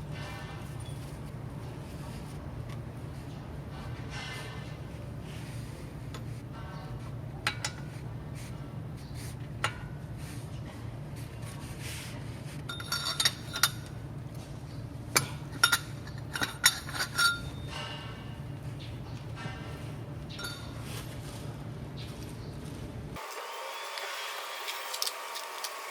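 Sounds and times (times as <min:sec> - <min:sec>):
metal tools clinking: 0:12.7 - 0:13.9, 0:15.2 - 0:18.4, 0:19.4 - 0:21.2.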